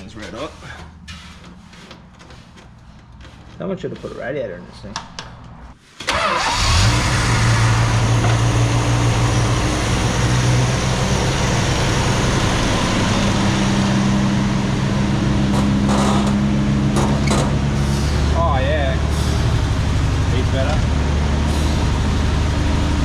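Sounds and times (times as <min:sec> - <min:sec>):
engine starting and idling: 0:06.0 - 0:10.8.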